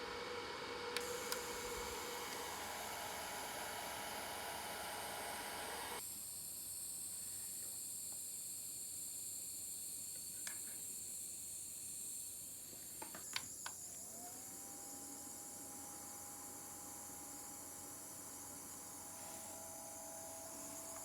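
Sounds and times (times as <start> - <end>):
small fan motor whine: 0.0 - 6.0, 10.8 - 21.0.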